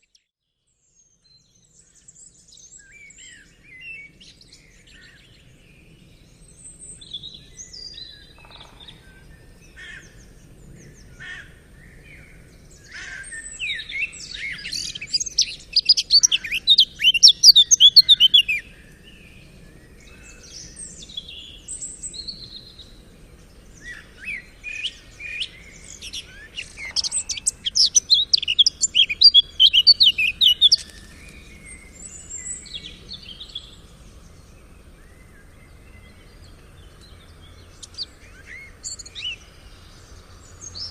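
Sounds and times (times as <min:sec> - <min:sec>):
songbird singing: 0:00.0 - 0:40.9
bird chirps: 0:06.8 - 0:09.4, 0:12.8 - 0:23.0, 0:23.6 - 0:40.9.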